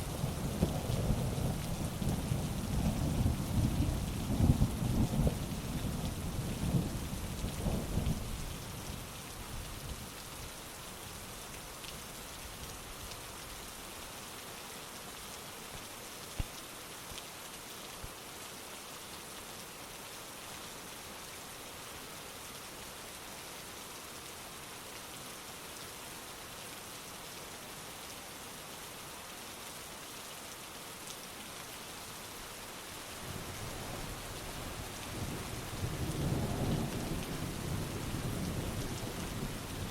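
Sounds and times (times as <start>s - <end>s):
heavy rain falling: 0.0s - 14.0s, 30.5s - 39.9s.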